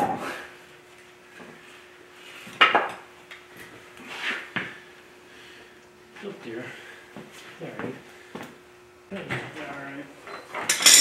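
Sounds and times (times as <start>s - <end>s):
sharp metal clanks: 10.6s - 11.0s.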